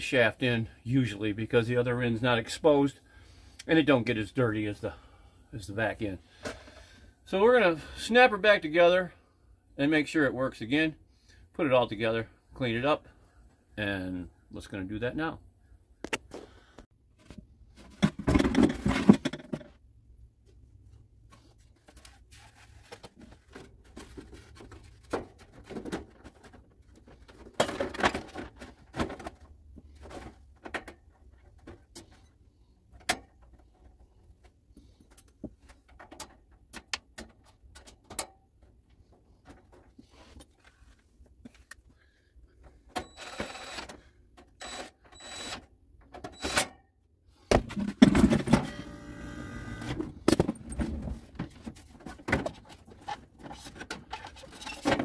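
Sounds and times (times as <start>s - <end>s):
plastic parts clattering: 17.8s - 19.7s, 22.7s - 32.2s, 50.2s - 55.0s
plastic parts clicking and rattling: 22.8s - 32.2s, 50.2s - 55.0s.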